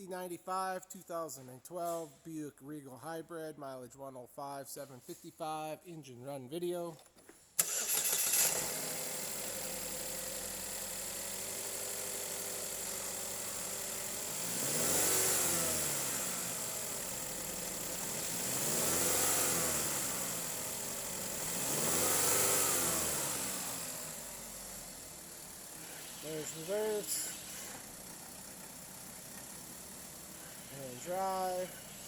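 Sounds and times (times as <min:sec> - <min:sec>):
car engine idling and revving: 0:07.6 - 0:32.0.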